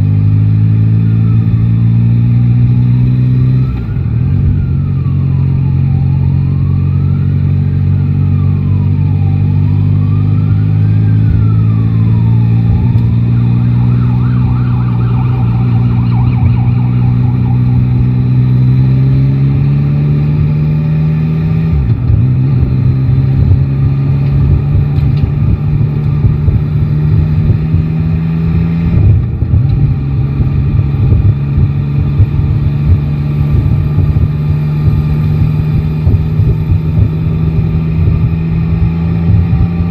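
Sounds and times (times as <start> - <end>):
emergency vehicle siren wailing: 0.7 - 39.9
motorcycle engine running: 11.1 - 39.9.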